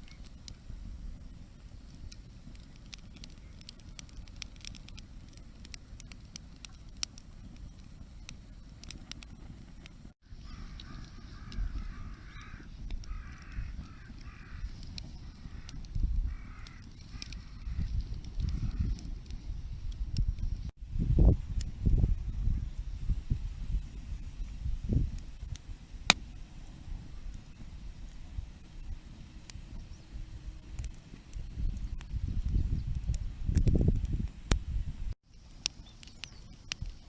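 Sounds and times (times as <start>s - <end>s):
campfire crackling and popping: 0.0s - 37.0s
bird calling: 10.3s - 19.0s.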